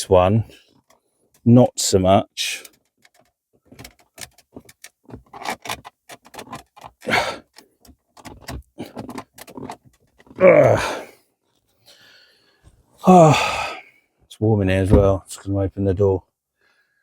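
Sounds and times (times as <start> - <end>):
plastic trim clicking and rattling: 2.6 - 10.4
strained grunt of effort: 7.0 - 7.5, 10.4 - 11.2, 13.0 - 13.9.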